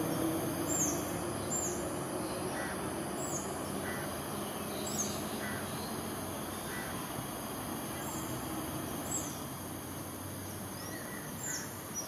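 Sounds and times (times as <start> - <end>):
faint lower bird calls: 0.7 - 6.0, 10.8 - 12.0.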